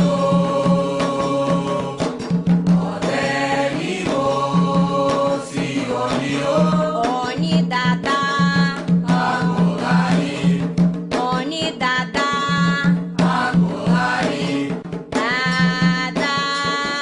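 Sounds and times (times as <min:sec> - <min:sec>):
group chanting: 0:00.0 - 0:07.3, 0:09.0 - 0:10.8, 0:13.2 - 0:14.8
drumming: 0:00.0 - 0:17.0.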